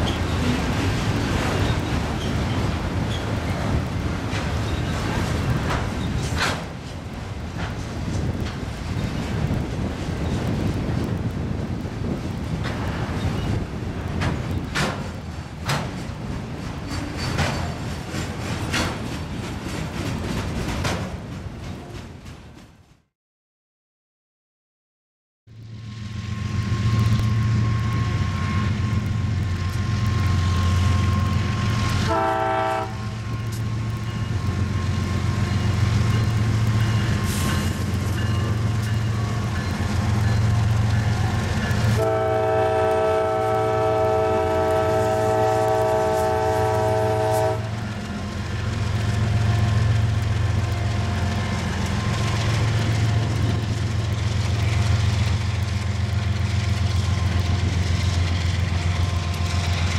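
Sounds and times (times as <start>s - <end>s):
diesel locomotives engine drone: 0.0s - 22.2s, 25.5s - 59.9s
train air horn blasts: 32.0s - 33.2s, 41.9s - 47.8s.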